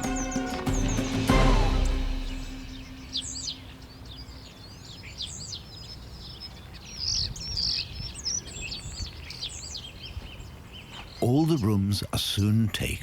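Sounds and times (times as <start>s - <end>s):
starlings whistling: 0.0s - 9.8s.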